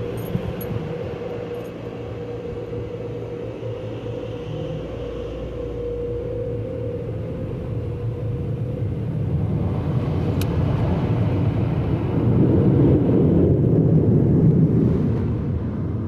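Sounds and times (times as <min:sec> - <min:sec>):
truck wash machinery rumbling: 0:00.0 - 0:16.0.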